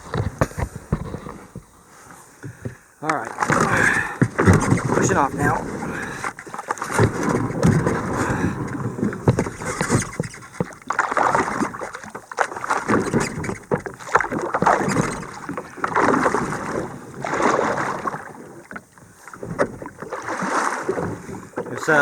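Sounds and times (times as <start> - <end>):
small knocks: 0.0 - 1.7, 2.4 - 5.7, 6.3 - 11.0
paddle strokes swishing water: 0.0 - 22.0.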